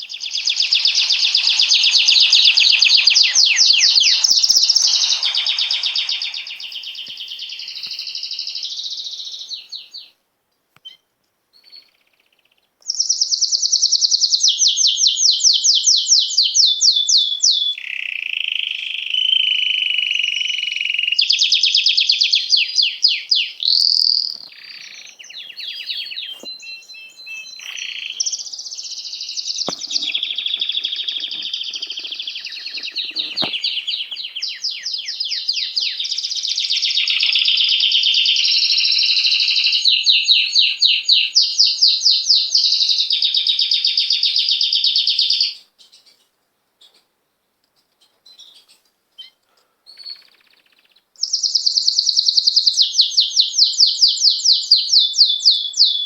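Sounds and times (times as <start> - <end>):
songbirds chirping and trilling: 0.0 - 10.2, 16.8 - 47.1.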